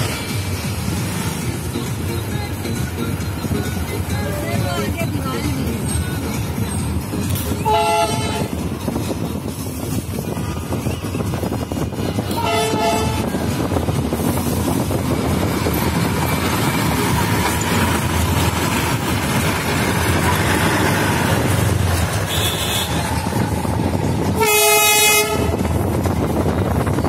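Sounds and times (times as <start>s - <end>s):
diesel train rumbling: 0.0s - 27.0s
train horn toot: 7.5s - 8.6s, 12.3s - 13.5s, 22.2s - 23.1s, 24.3s - 25.8s.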